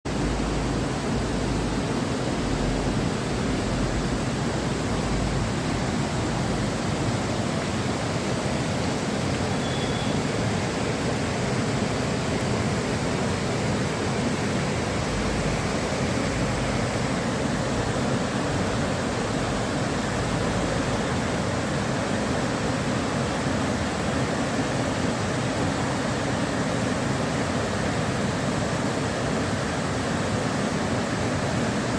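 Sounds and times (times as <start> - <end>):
river water flowing: 0.1 - 31.9.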